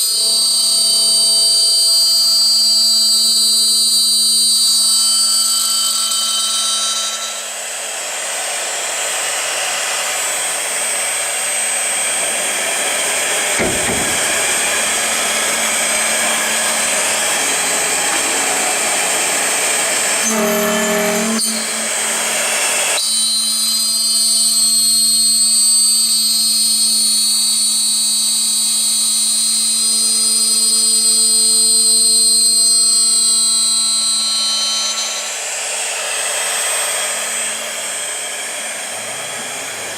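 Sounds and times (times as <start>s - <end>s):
machine spindle whining: 0.0s - 39.9s
tool cutting metal: 0.0s - 39.9s
steady machine hum: 8.5s - 23.0s.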